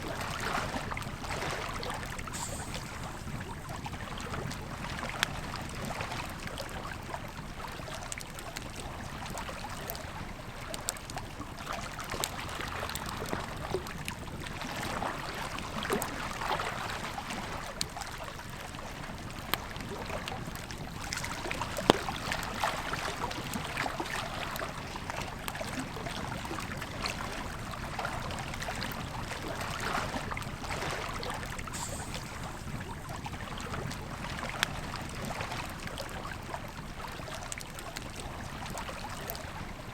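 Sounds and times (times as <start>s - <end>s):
river flowing: 1.3s - 5.1s, 19.8s - 36.1s
campfire crackling and popping: 19.0s - 25.7s.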